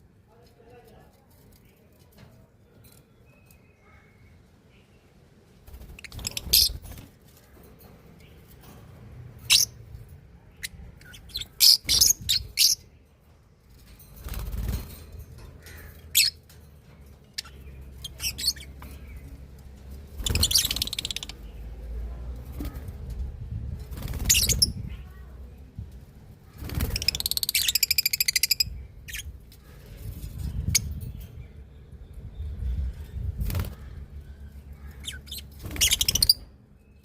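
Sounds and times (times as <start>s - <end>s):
small birds chirping: 0.3s - 37.0s.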